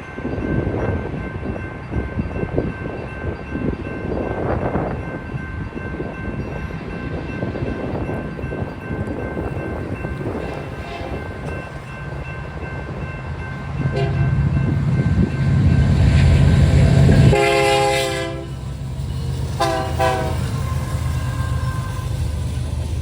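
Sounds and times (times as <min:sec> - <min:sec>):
crossing bell ringing: 0:00.0 - 0:23.0
locomotive horn blasts: 0:10.7 - 0:11.3, 0:13.9 - 0:14.4, 0:17.0 - 0:18.6, 0:19.5 - 0:20.8.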